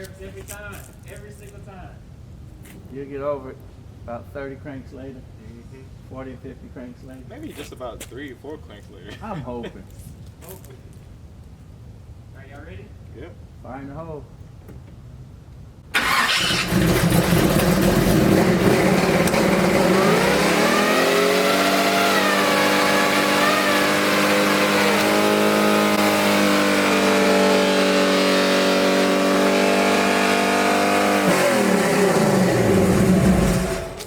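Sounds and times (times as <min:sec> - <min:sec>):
truck engine starting: 0:15.9 - 0:34.0
truck engine revving high: 0:16.0 - 0:34.0.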